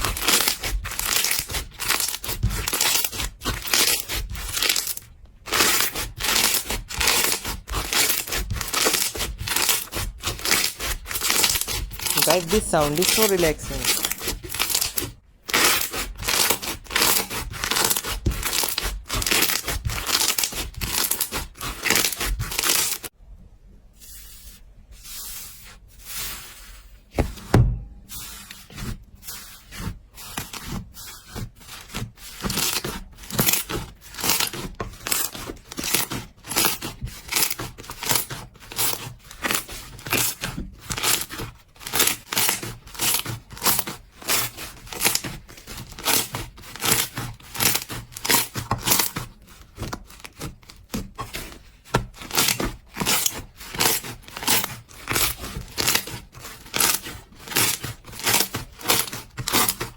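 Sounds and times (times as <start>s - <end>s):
low thump: 27.2s - 28.1s.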